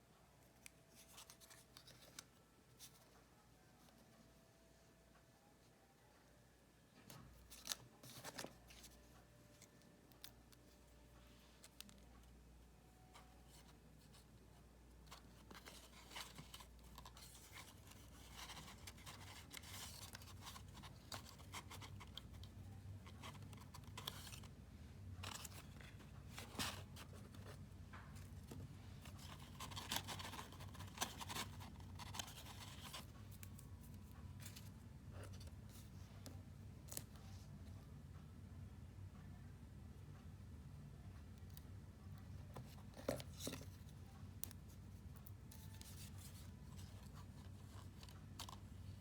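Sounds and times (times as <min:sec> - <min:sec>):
low steady hum: 0:00.0 - 0:49.0
paper rustling and scraping: 0:28.5 - 0:33.1.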